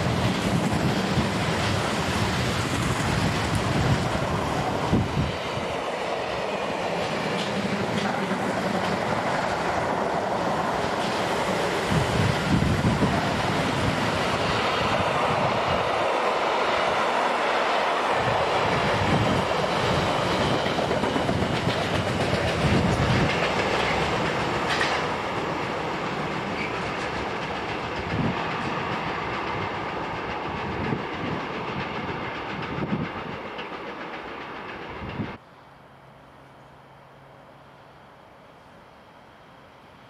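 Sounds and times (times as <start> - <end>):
train wheels clattering: 0.0 - 15.0, 18.3 - 35.4.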